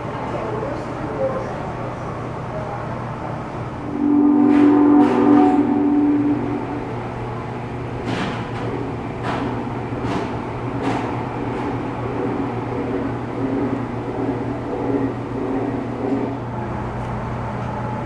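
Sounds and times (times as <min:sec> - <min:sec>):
steady low hum: 0:03.2 - 0:08.9
steam locomotive exhaust chuffs: 0:03.8 - 0:08.6.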